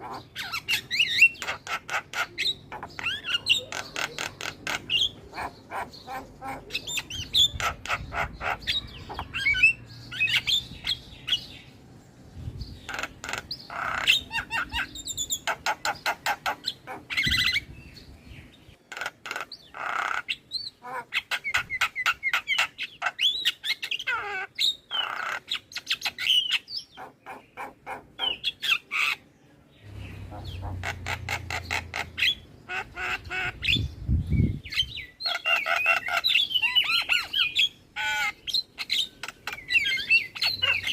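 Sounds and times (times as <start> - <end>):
myna chattering song: 0.0 - 11.5.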